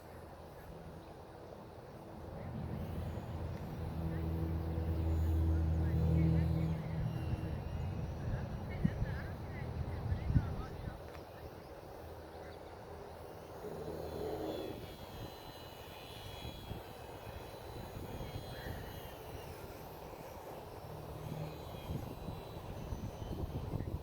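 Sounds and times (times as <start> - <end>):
model airplane motor whining: 0.0 - 24.0
wind on microphone: 6.7 - 11.2, 21.5 - 24.0.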